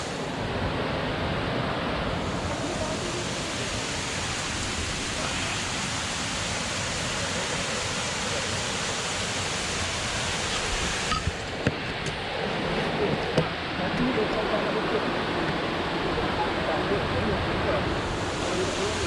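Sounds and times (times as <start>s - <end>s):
water rushing: 0.0s - 19.0s.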